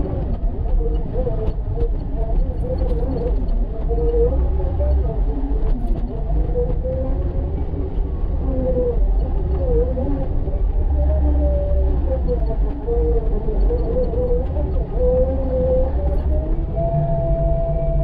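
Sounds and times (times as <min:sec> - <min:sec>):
heavy low rumble: 0:14.1 - 0:18.0.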